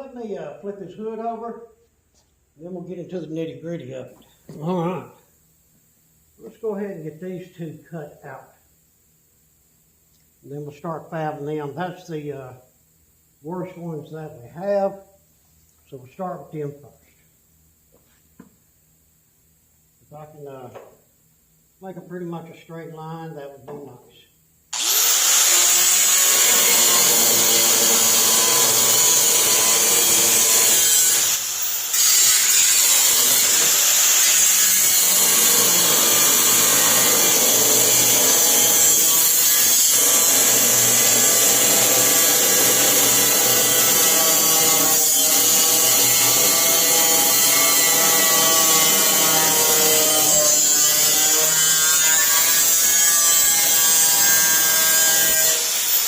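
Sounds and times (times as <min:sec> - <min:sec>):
power cutting tool cutting steel: 0:24.8 - 0:56.0.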